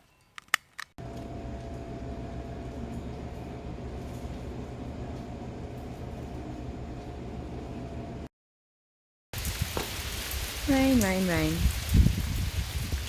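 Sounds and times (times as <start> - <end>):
constant hum: 1.0 - 8.3.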